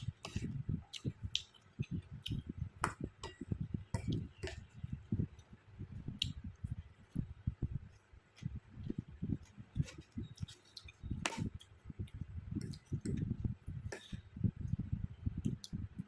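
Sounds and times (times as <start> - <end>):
close chewing and munching: 0.0 - 2.5.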